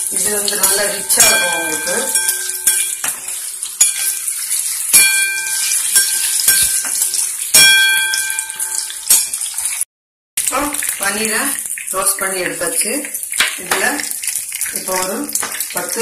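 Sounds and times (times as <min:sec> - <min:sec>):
spoon scraping and knocking wok: 0:00.0 - 0:09.6
paneer sizzling in hot oil: 0:00.0 - 0:16.0.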